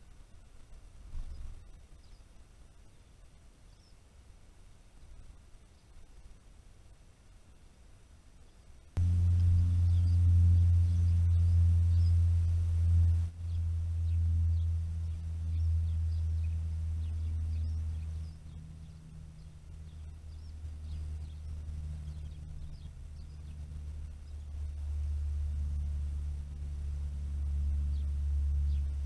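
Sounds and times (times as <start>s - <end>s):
small birds chirping: 1.1s - 4.1s, 8.4s - 29.0s
steady low hum: 9.0s - 29.0s.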